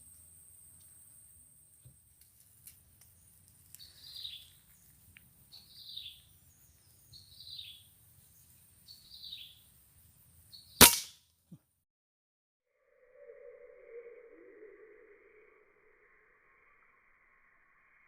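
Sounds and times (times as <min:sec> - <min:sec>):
air rifle shot: 0:10.8 - 0:11.1.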